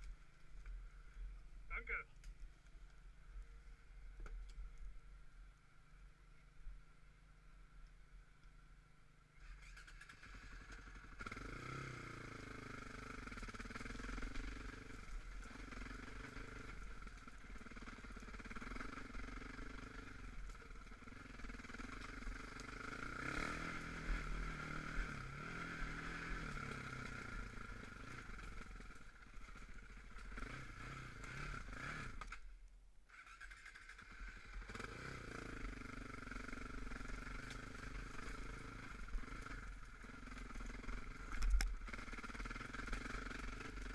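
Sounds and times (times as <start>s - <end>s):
off-road vehicle engine revving: 9.4s - 32.4s, 33.1s - 43.9s.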